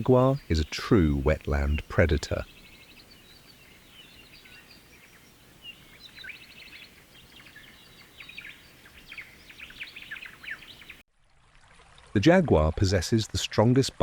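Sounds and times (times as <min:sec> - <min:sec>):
birds chirping: 0:00.0 - 0:11.0
steady background hiss: 0:00.0 - 0:11.0.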